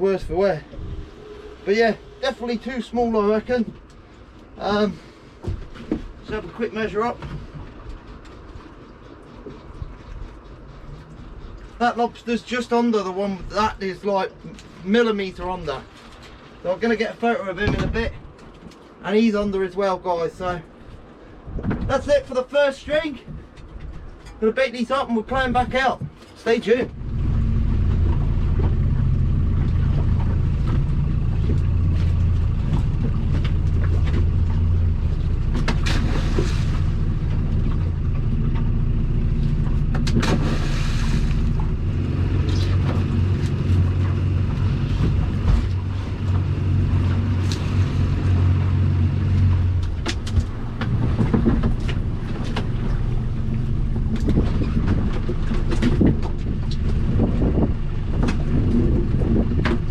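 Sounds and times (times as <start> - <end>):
boat engine running: 0.0 - 19.0, 25.2 - 59.9.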